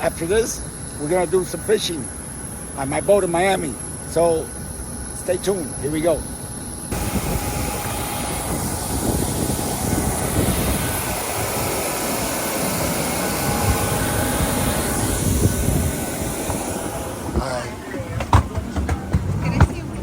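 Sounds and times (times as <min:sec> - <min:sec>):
faint high whine: 0:00.0 - 0:19.2
jet engine cabin rumble: 0:05.6 - 0:20.0.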